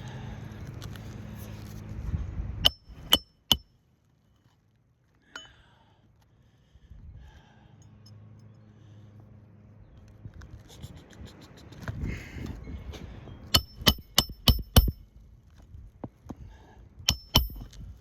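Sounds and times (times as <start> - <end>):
hammer striking roofing nails: 13.6 - 15.0, 17.1 - 17.7.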